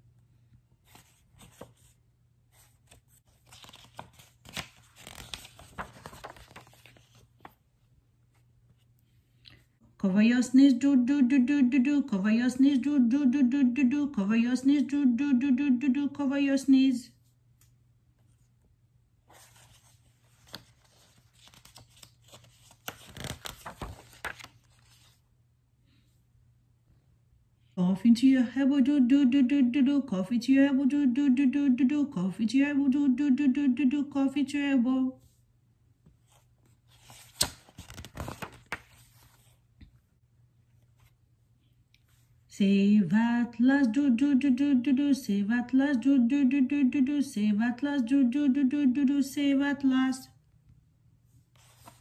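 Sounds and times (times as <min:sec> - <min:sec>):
book page turning: 0:00.8 - 0:07.6, 0:19.3 - 0:25.2, 0:36.1 - 0:39.6, 0:51.5 - 0:52.0
paper rustling: 0:00.8 - 0:07.6, 0:19.3 - 0:25.2, 0:36.2 - 0:39.6, 0:51.5 - 0:52.0.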